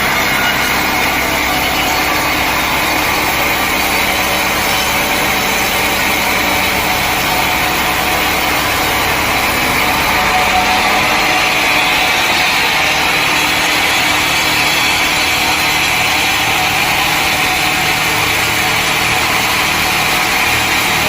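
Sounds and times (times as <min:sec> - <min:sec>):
saw cutting through log: 0:00.0 - 0:21.0.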